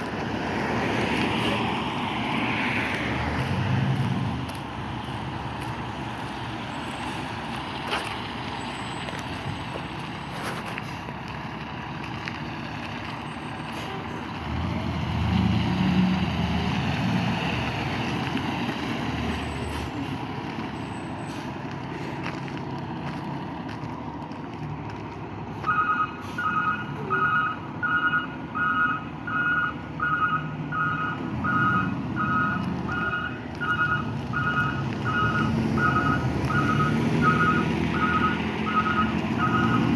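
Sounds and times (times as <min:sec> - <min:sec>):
fire truck engine running: 0:00.0 - 0:15.0, 0:16.1 - 0:39.9
reversing alarm beeps: 0:25.6 - 0:39.9.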